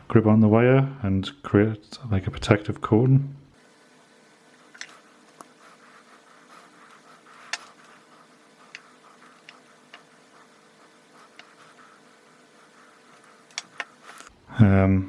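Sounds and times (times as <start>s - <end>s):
faint steady hum: 3.0s - 15.0s
small clicks and taps: 13.1s - 14.3s.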